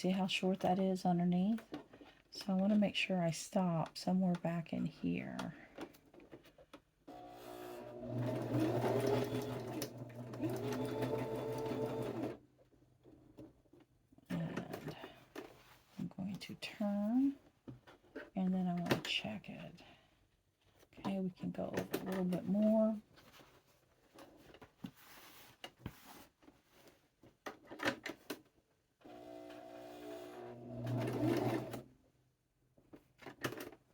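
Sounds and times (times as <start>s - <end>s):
electric sewing machine stitching: 7.1s - 12.4s, 29.0s - 31.9s
clicks and knocks of handling: 32.8s - 33.9s.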